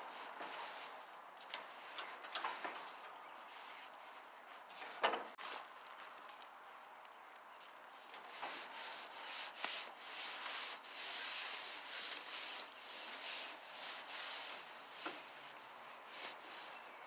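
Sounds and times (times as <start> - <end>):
damp rag rubbing grill: 0.0 - 1.1, 8.2 - 17.0.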